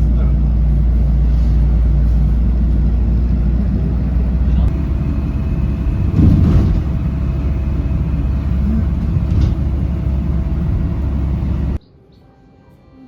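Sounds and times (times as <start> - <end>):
loud low rumble: 0.0 - 11.8
faint music: 11.8 - 13.0.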